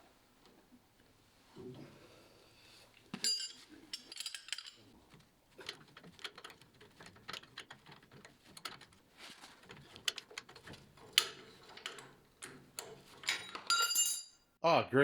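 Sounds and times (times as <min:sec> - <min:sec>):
metal hand tools clinking: 0:03.1 - 0:08.8, 0:09.7 - 0:14.5.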